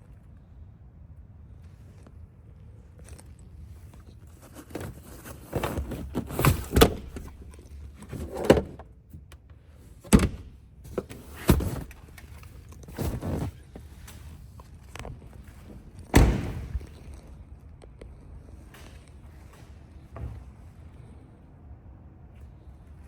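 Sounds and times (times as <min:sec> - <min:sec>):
rustling and handling noise: 0:01.6 - 0:17.4
sharp thunks and clunks: 0:04.5 - 0:09.4, 0:10.0 - 0:13.8, 0:16.0 - 0:17.2.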